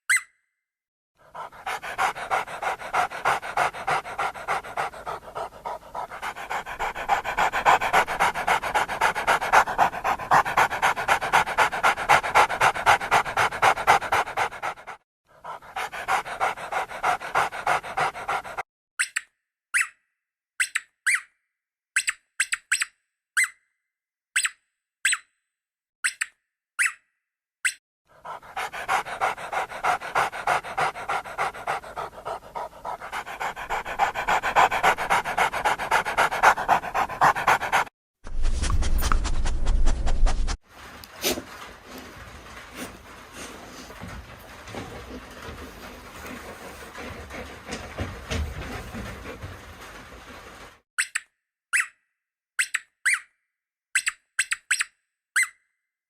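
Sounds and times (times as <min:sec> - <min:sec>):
dog panting rapidly: 0:01.2 - 0:18.6, 0:28.1 - 0:50.7.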